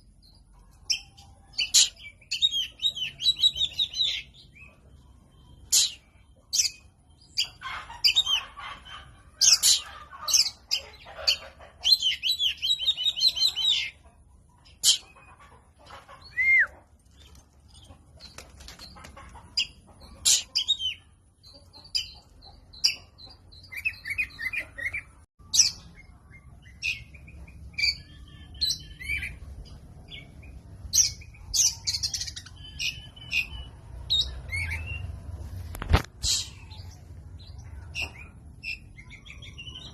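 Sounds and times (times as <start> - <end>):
bird singing whistles and trills: 16.3 - 16.7.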